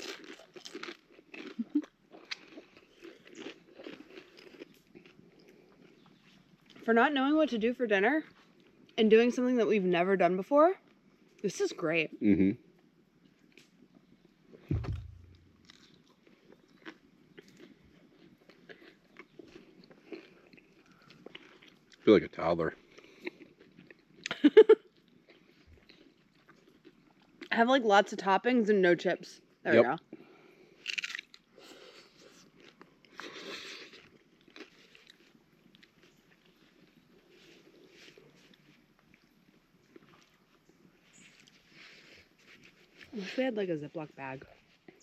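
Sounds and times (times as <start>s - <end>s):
chewing and crunching chips: 0.0s - 6.9s, 8.2s - 9.0s, 13.2s - 27.6s, 29.4s - 43.3s
low thump: 14.7s - 15.6s.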